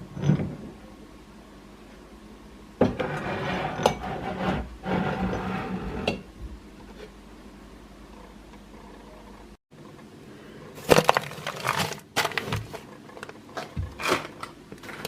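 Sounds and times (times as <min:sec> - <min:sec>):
containers and jars clattering: 0:10.8 - 0:15.0.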